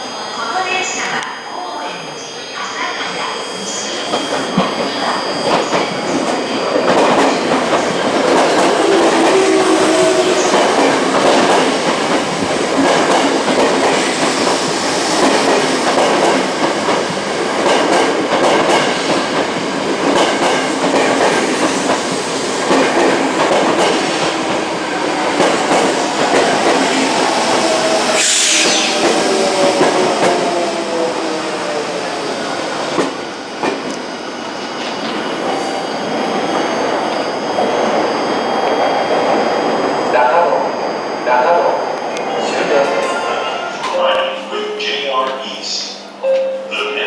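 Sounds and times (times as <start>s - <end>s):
high squeal: 1.5s - 11.1s, 24.0s - 32.8s
train wheel clatter: 4.3s - 30.6s.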